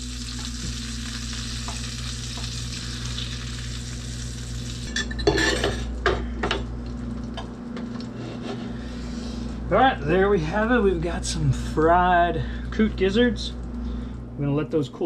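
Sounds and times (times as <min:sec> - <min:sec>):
food sizzling in frying oil: 0:00.0 - 0:05.6.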